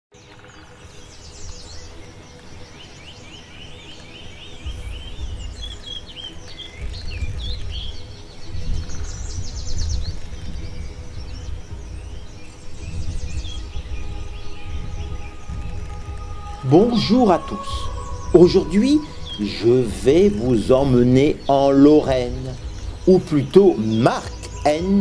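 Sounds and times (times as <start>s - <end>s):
background music: 0.1s - 25.0s
birds chirping and trilling: 0.1s - 25.0s
deep low sound: 6.8s - 25.0s.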